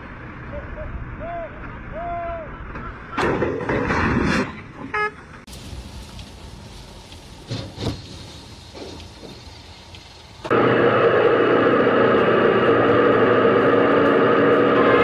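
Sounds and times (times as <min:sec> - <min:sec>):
traffic rushing: 0:00.0 - 0:15.0
vehicle horn toot: 0:04.9 - 0:05.2.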